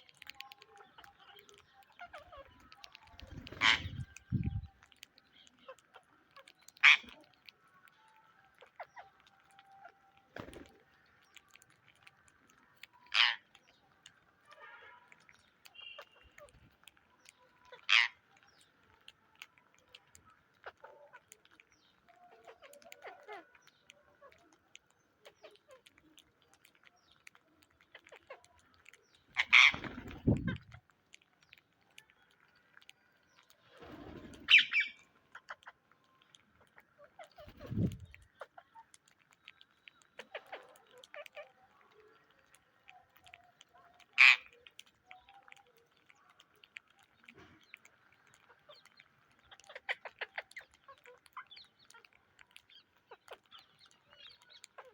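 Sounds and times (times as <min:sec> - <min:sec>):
parrots chirping and clicking: 0:00.0 - 0:54.9
parrot squawking: 0:01.0 - 0:04.6, 0:06.8 - 0:07.2, 0:12.9 - 0:13.5, 0:17.7 - 0:18.2, 0:29.3 - 0:30.8, 0:34.5 - 0:35.8, 0:44.1 - 0:44.6
parrot harsh call: 0:03.6 - 0:04.2, 0:29.4 - 0:30.0, 0:44.2 - 0:44.5.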